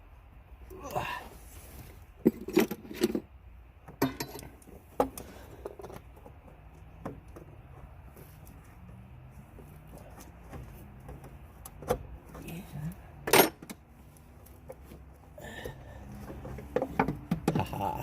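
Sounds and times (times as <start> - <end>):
metal tools clinking and rattling: 4.0 - 4.6.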